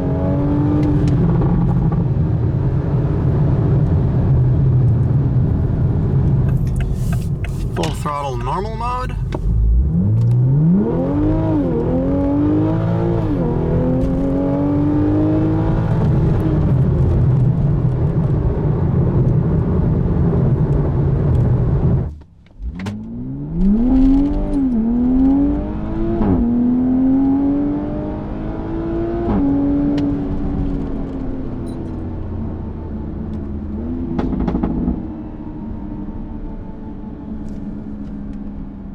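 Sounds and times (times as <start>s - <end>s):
car engine at full throttle: 6.5s - 8.0s.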